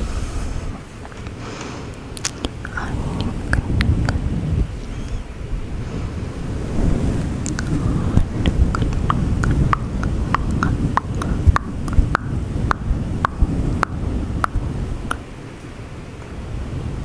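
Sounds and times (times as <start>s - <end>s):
microphone windscreen being rubbed: 0.0s - 1.1s
tongue clicks: 2.2s - 5.2s, 7.4s - 15.3s.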